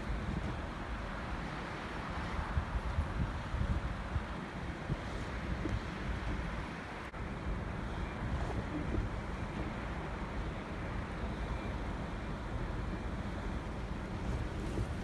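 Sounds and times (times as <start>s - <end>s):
vehicle rumble inside car: 0.0s - 15.0s.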